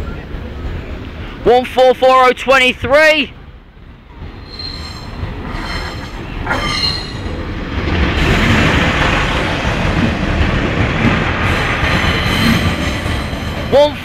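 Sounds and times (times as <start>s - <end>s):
diesel train passing: 0.0s - 14.0s
high wheel squeal: 4.4s - 7.6s.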